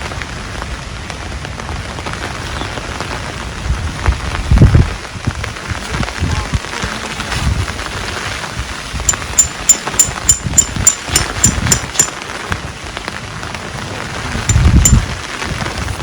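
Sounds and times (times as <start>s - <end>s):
heavy rain falling: 0.0s - 9.1s, 12.1s - 16.0s
sharp high-pitched ticks: 9.1s - 12.2s, 14.5s - 15.1s.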